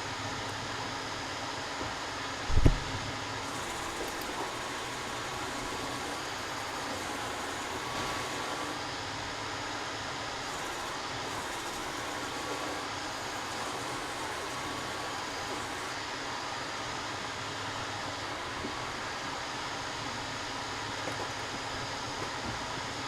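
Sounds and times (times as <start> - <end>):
loud thump: 2.5 - 3.0
machine running: 2.5 - 9.2, 10.3 - 19.5.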